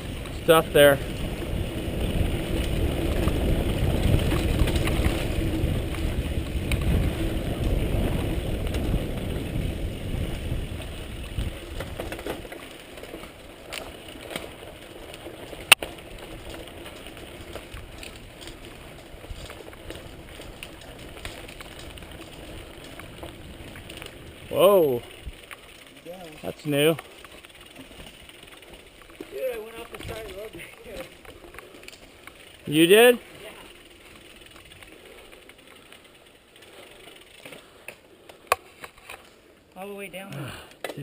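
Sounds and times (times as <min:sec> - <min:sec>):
wind rushing over microphone: 0:00.0 - 0:12.0
bicycle tyre rumble on dirt: 0:00.0 - 0:41.0.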